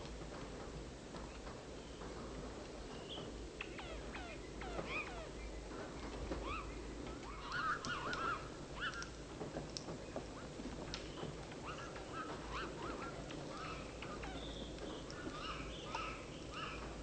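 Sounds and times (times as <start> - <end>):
birds whistling calls: 2.9 - 9.2, 10.0 - 17.0
wavering bird calls: 3.0 - 9.2, 10.0 - 17.0.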